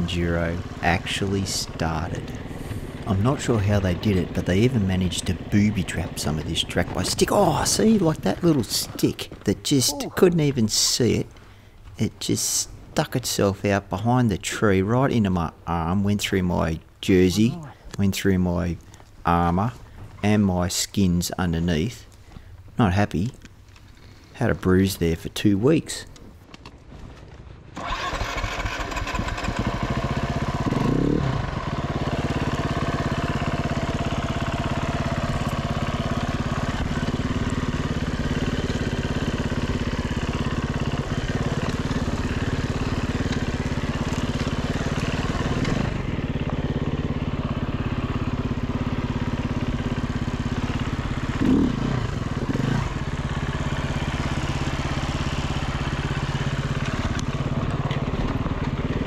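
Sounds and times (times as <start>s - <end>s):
dirt bike engine revving: 27.8s - 59.0s.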